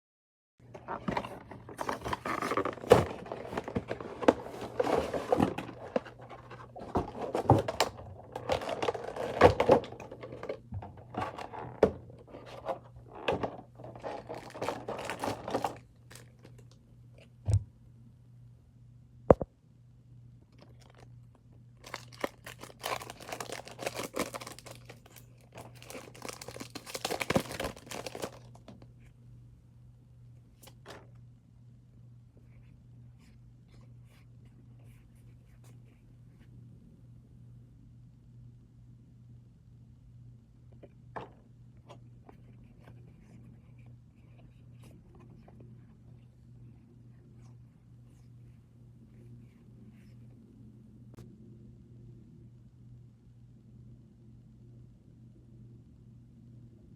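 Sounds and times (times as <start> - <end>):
steady low hum: 0.6 - 56.9
packaging torn and crinkled: 14.0 - 16.6, 21.8 - 28.6.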